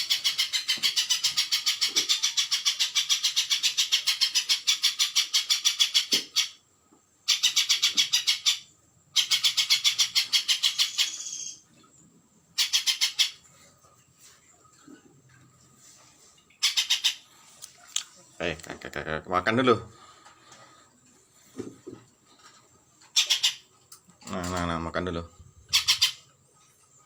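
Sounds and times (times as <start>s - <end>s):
bird fast chattering call: 16.6s - 17.3s, 23.2s - 23.7s, 25.7s - 26.2s.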